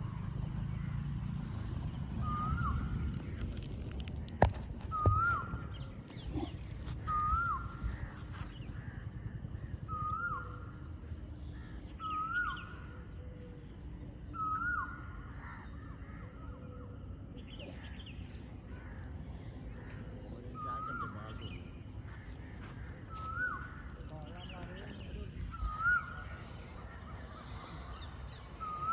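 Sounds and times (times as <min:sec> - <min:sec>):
wind rumble on microphone: 0:00.0 - 0:12.0
faint bird chirps: 0:00.0 - 0:28.9
bird calling: 0:02.2 - 0:28.9.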